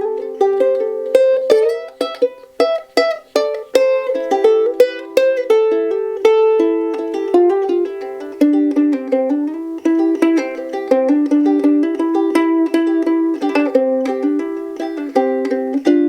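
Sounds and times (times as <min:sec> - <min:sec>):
ukulele plucked notes and chords: 0:00.0 - 0:16.0.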